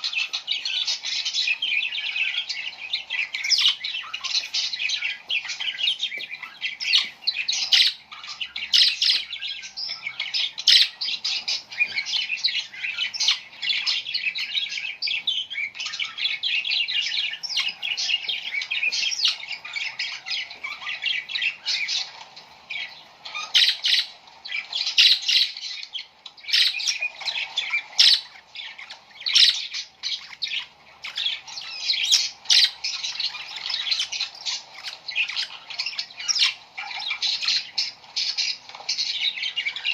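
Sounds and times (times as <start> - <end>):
small birds chirping and squawking: 0.0 - 39.9.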